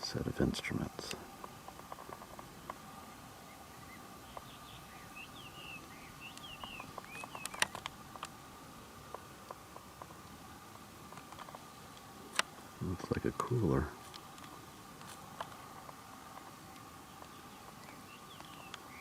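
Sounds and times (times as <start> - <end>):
faint steady tone: 0.0 - 19.0
bird chirps and whistles: 3.7 - 7.6.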